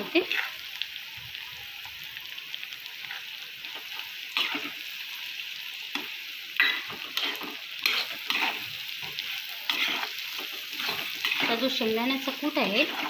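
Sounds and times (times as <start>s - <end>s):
potatoes sizzling in oil: 0.0s - 13.0s
metal spatula scraping pan: 0.2s - 0.6s, 6.0s - 13.0s.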